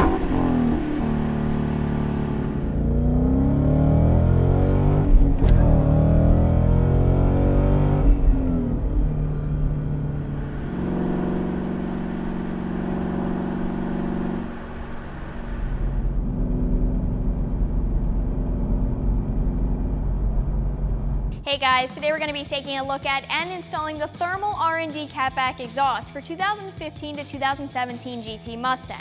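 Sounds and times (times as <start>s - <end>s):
car engine revving and idling: 0.0s - 21.4s.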